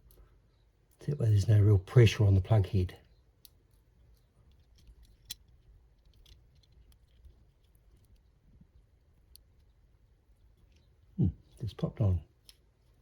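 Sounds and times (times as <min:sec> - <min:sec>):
small parts clicking: 0:03.3 - 0:11.6, 0:12.3 - 0:13.0.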